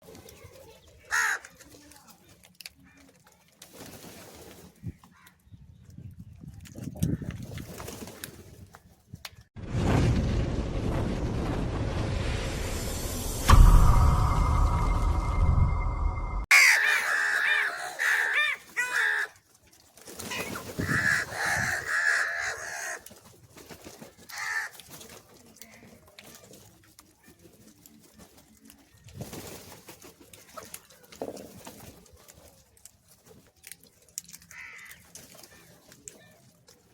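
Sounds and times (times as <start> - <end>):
crow cawing: 1.1 - 1.5, 16.5 - 19.4, 20.8 - 23.0, 24.3 - 24.7, 34.5 - 35.0.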